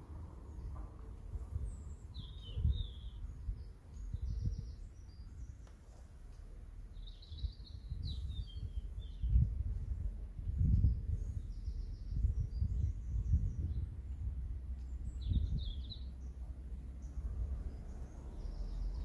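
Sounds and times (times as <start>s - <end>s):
small birds twittering: 0.0s - 19.0s
low uneven rumble: 5.8s - 19.0s.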